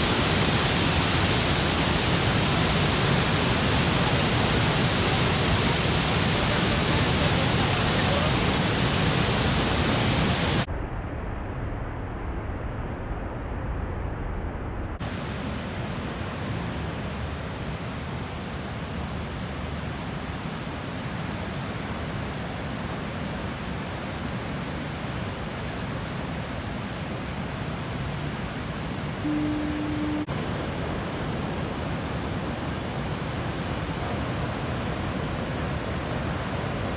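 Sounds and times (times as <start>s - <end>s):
waterfall rushing: 0.0s - 10.7s, 29.2s - 36.9s.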